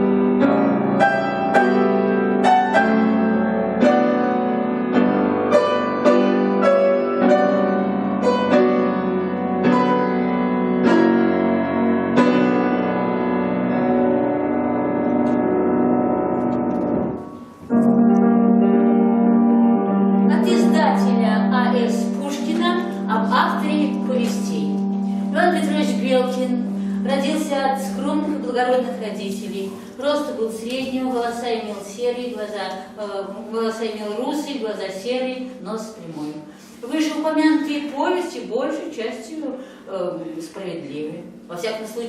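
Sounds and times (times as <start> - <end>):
slow solo piano piece: 0.0 - 31.4.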